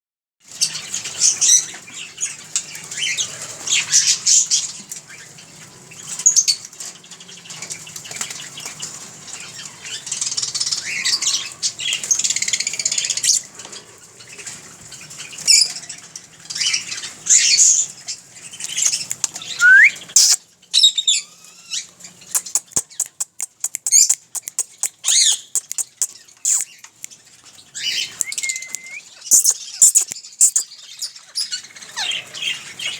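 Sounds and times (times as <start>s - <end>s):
parakeet squawking: 19.5s - 20.4s, 22.4s - 26.7s, 27.8s - 30.7s
rising whistle: 19.6s - 20.0s, 28.2s - 29.0s
rapid sharp clicks: 22.3s - 26.7s.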